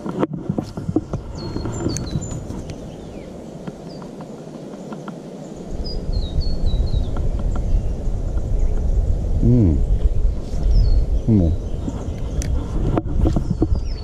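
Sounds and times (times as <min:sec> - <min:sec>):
birds chirping: 0:00.0 - 0:14.0
low rumble: 0:05.7 - 0:14.0.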